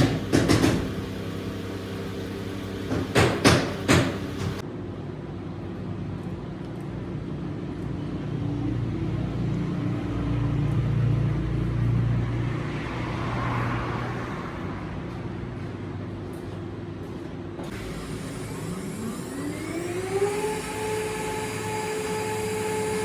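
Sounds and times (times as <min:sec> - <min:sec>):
low motor hum: 0:00.0 - 0:04.6, 0:17.7 - 0:23.0.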